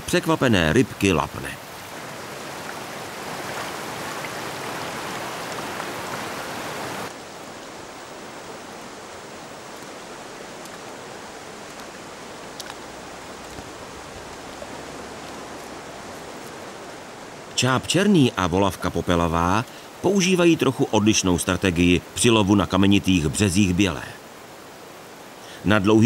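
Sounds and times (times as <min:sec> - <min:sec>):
mountain stream rushing over stones: 0:00.0 - 0:26.0.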